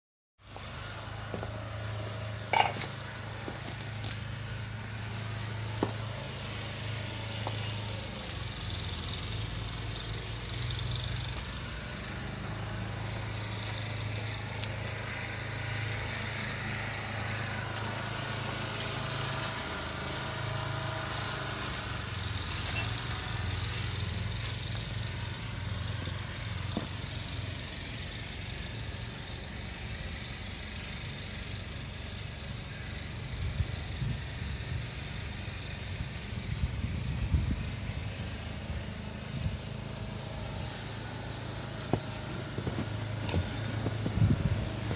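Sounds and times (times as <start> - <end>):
engine humming: 0.4 - 44.9.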